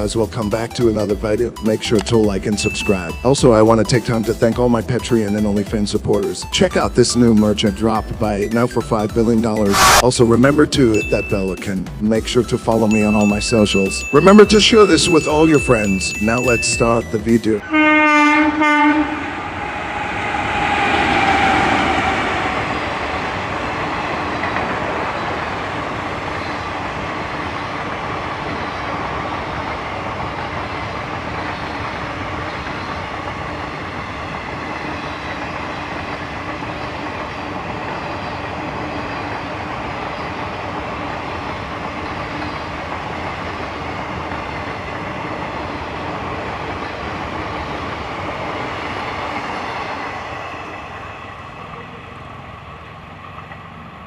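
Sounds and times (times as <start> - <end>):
train passing with wheel clatter: 0.0 - 54.0.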